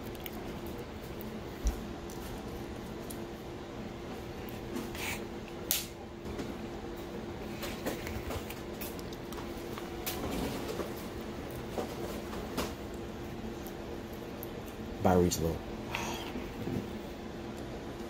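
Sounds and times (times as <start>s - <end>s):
wet chewing: 0.0s - 3.4s, 7.4s - 15.0s
steady low hum: 0.0s - 18.0s.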